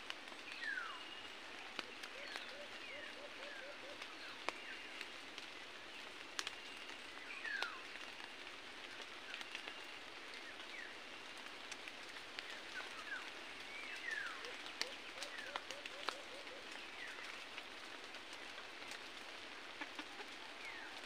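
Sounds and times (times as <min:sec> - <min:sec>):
small birds chirping: 0:09.0 - 0:18.2.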